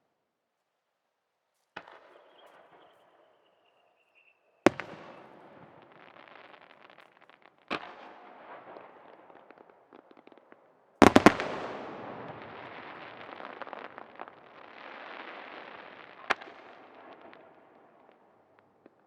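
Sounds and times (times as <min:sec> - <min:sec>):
fireworks crackle: 0:01.8 - 0:19.0
fireworks bangs: 0:04.7 - 0:10.2, 0:11.0 - 0:19.0.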